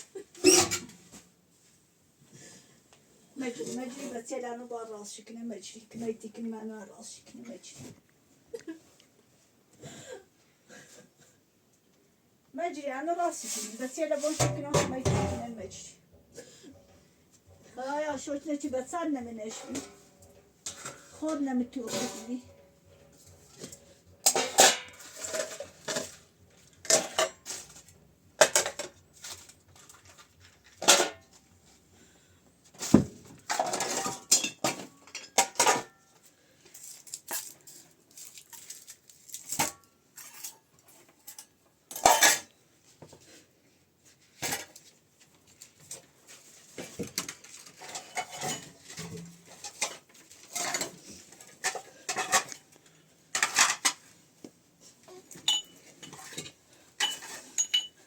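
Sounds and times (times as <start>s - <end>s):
clattering and clinking of objects: 13.4s - 43.3s, 44.1s - 58.0s.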